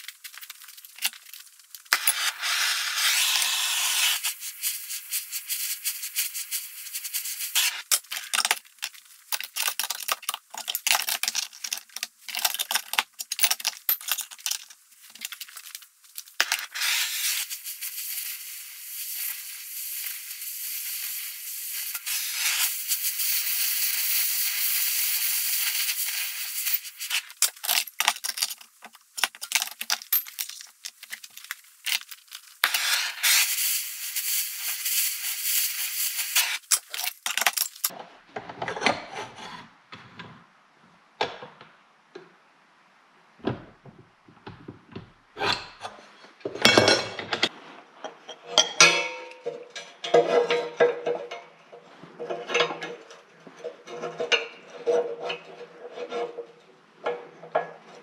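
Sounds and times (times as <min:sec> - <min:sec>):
metalworking tool hissing on steel: 0:01.9 - 0:08.4, 0:16.4 - 0:28.0, 0:31.7 - 0:37.0
metal parts clinking: 0:07.6 - 0:16.8, 0:25.7 - 0:32.9, 0:36.2 - 0:37.9.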